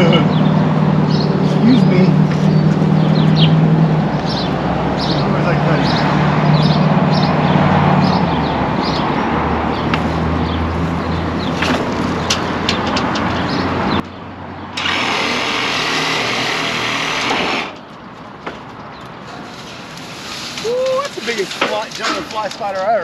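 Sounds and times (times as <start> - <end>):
power saw cutting tree limbs: 14.8 - 17.8.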